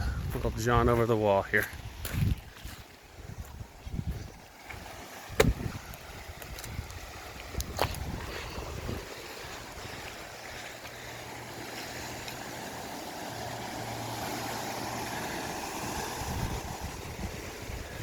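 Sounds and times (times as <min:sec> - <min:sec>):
wind on microphone: 0:00.0 - 0:01.0, 0:01.7 - 0:10.3, 0:14.9 - 0:18.0
ocean surf washing onto beach: 0:04.3 - 0:18.0.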